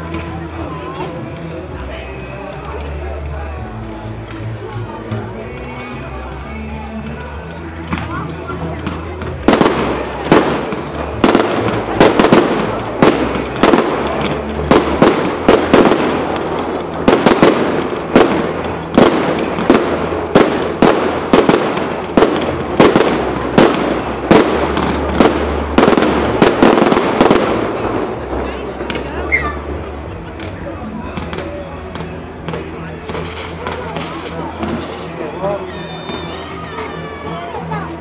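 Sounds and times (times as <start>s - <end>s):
firework shell bursts: 8.8s - 30.6s.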